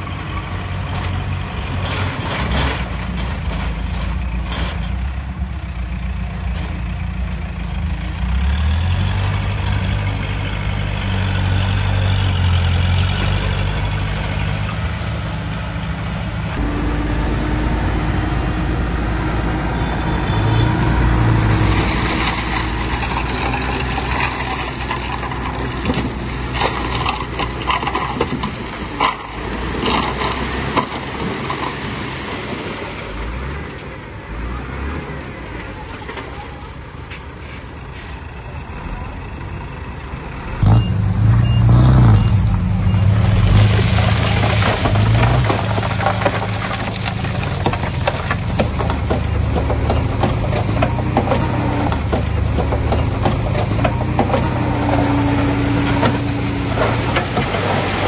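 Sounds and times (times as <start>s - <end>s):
diesel machinery engine: 0.0s - 58.0s
knocks and rattles: 43.8s - 58.0s.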